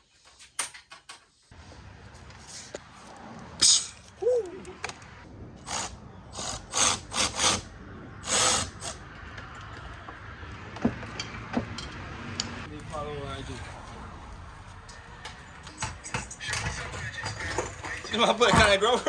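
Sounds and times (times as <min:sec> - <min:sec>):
power tool bursts: 0:05.6 - 0:09.0.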